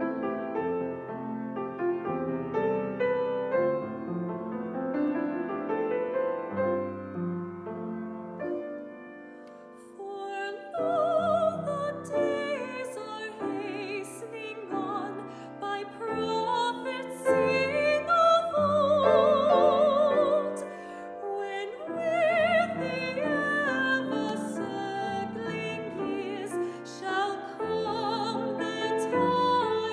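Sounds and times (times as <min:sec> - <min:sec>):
piano accompaniment: 0:00.0 - 0:29.9
soprano singing with vibrato: 0:09.8 - 0:29.9.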